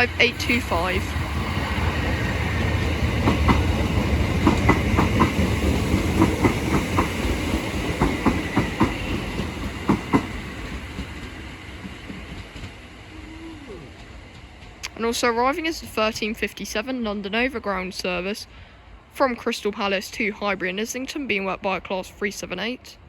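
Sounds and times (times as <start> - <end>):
train rumbling: 0.0 - 23.0
wheels clicking over rail joints: 2.7 - 12.9.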